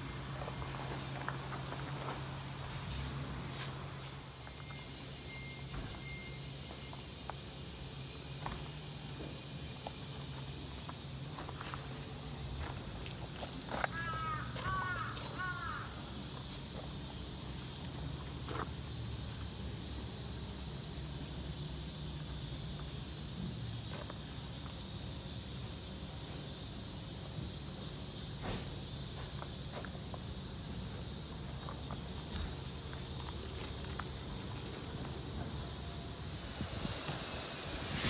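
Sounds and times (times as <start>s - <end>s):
faint footsteps on gravel: 9.2s - 17.0s, 31.6s - 35.2s
high-pitched background drone: 33.9s - 38.0s.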